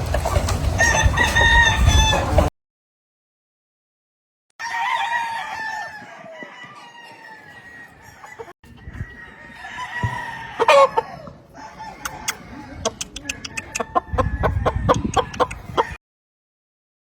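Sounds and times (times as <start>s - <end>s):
roosters crowing: 0.5s - 2.5s, 4.6s - 16.0s
short sharp clucks: 12.0s - 16.0s.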